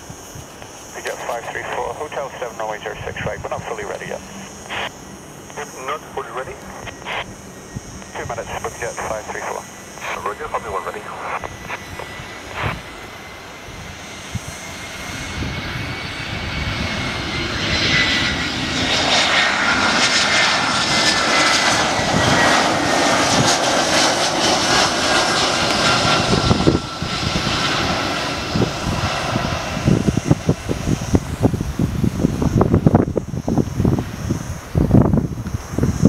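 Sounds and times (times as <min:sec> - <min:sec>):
jet airliner engines whining: 0:00.0 - 0:36.0.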